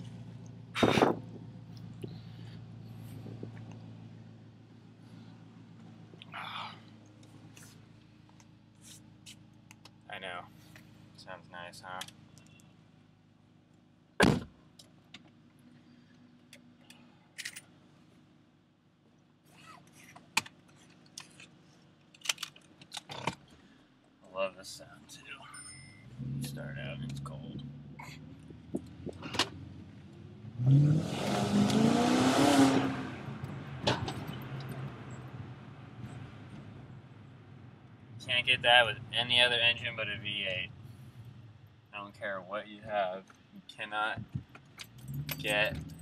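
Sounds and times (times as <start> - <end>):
car engine idling: 0.0 - 19.4, 33.0 - 46.0
loud thump: 14.2 - 14.5.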